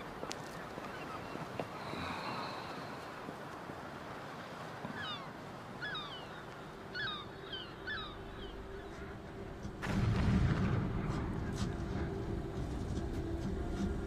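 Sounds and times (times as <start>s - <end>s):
bird calling: 4.8s - 9.5s.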